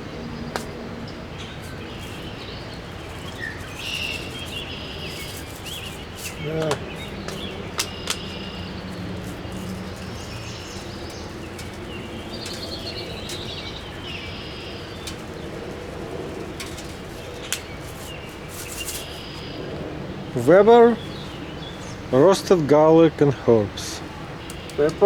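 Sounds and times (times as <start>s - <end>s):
birds chirping: 0.0s - 25.0s
outdoor background: 0.0s - 25.0s
sharp clicks: 6.3s - 8.6s.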